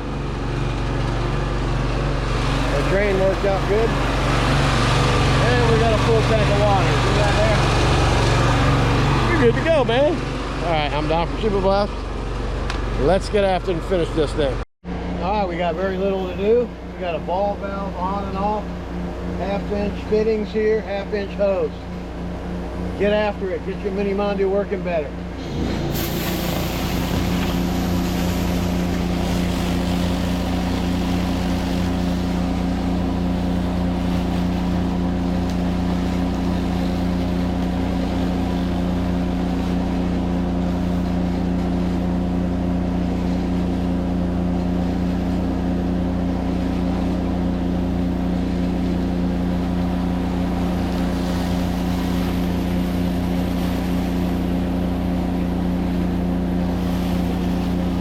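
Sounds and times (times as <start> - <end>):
pressure washer engine running: 0.0 - 58.0
water spray hissing: 25.5 - 32.3.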